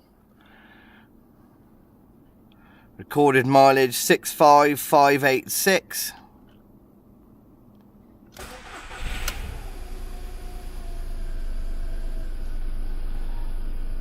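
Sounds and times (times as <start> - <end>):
car engine starting and idling: 8.4 - 14.0.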